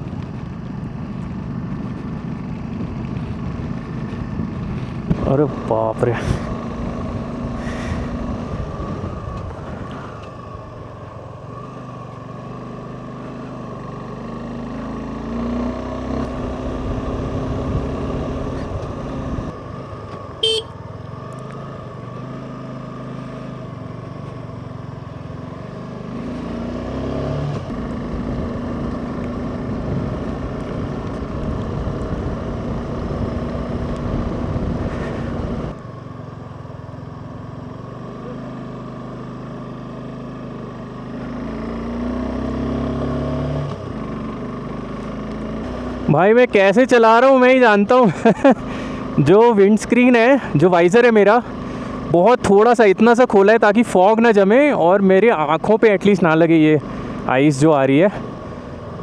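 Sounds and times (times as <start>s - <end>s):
motorcycle engine running: 0.0s - 59.0s
brief sharp tone: 20.4s - 20.8s.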